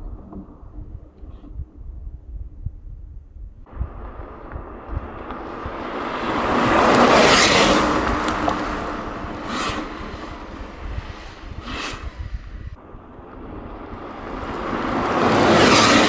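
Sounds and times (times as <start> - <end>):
car driving past: 3.7 - 16.0
whoosh: 3.7 - 16.0.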